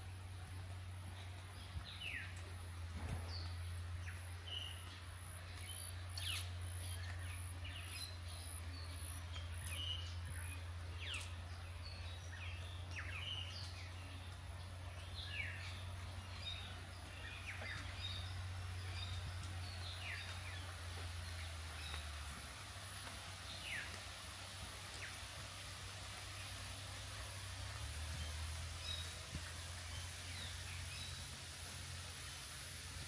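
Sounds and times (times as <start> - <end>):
birds chirping and whistling: 28.2 - 31.3.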